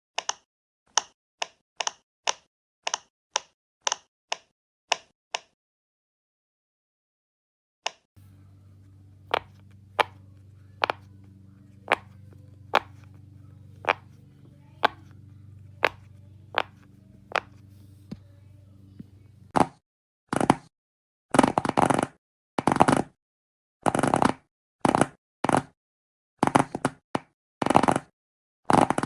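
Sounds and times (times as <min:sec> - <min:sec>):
steady low hum: 0:08.2 - 0:19.5
fidget toy clicking: 0:09.3 - 0:13.2, 0:13.8 - 0:15.2, 0:15.8 - 0:17.7.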